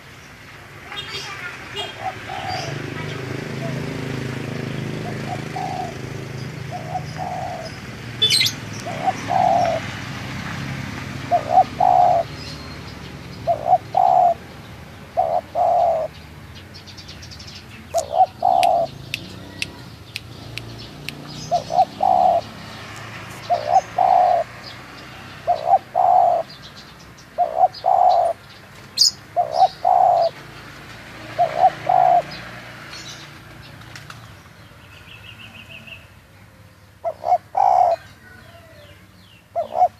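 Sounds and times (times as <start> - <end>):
dove cooing: 1.3 - 10.2, 11.0 - 12.5, 13.3 - 16.2, 17.9 - 20.0, 21.2 - 22.7, 23.3 - 26.6, 27.3 - 28.4, 29.0 - 30.4, 31.2 - 32.4, 37.0 - 39.9.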